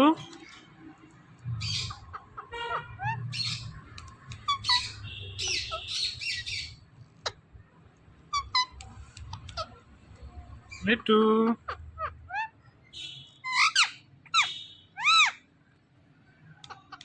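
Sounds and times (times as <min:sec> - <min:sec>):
parrot squawking harshly: 0:01.6 - 0:03.8, 0:04.4 - 0:07.4, 0:08.3 - 0:08.8, 0:13.4 - 0:15.5.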